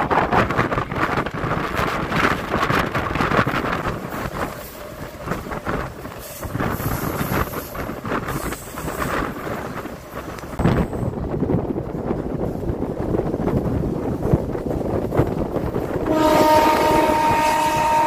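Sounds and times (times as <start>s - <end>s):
train coach rumbling on track: 0.0s - 18.0s
wind buffeting microphone: 0.0s - 18.0s.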